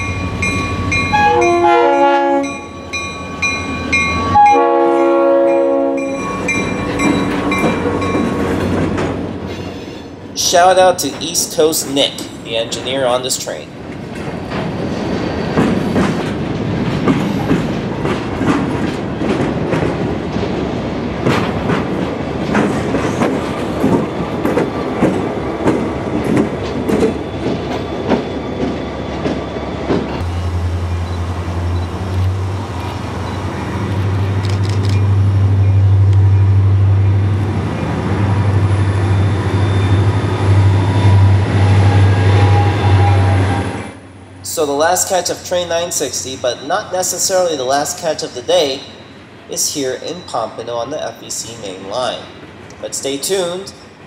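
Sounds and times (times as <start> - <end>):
train wheels clicking over rail joints: 6.2 - 36.2.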